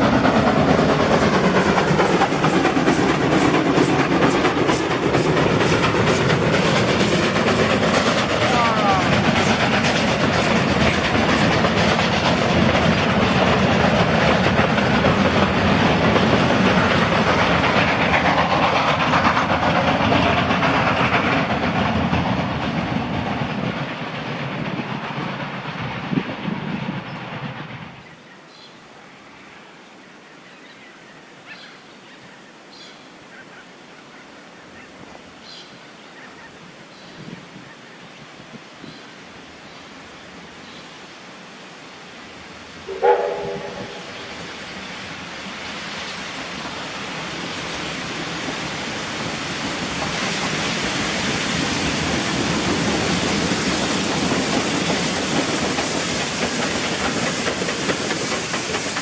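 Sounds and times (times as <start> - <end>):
train wheels clacking over rail joints: 0.0 - 28.1, 42.9 - 59.0.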